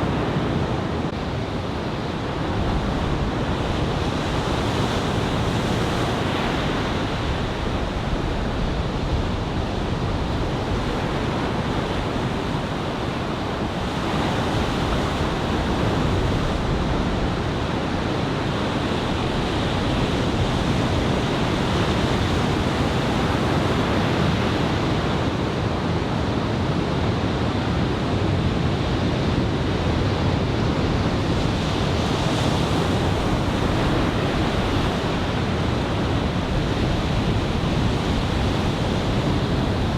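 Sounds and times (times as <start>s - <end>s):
wind on microphone: 0.0s - 39.9s
ocean surf breaking: 30.4s - 39.9s.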